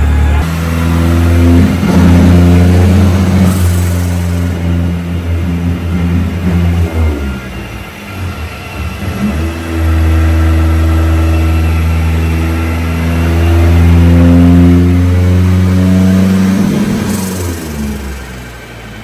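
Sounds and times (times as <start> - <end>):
pickup engine revving under load: 0.0 - 19.0.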